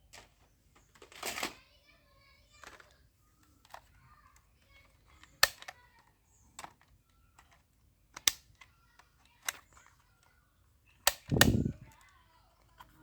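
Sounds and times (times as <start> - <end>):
airsoft pistol shots: 11.1 - 11.8.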